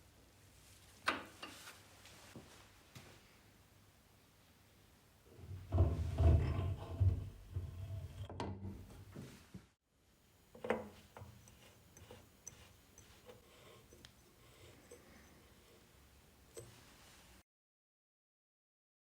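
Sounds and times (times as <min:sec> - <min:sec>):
rumbling scraping clatter: 0:05.4 - 0:08.3
objects handled and rubbed: 0:10.5 - 0:17.4.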